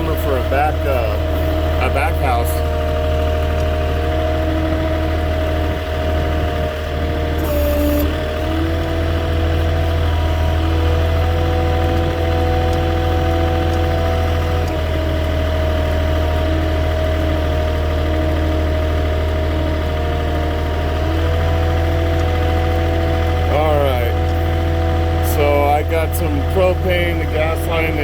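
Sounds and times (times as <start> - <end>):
forklift engine running: 0.0 - 28.0.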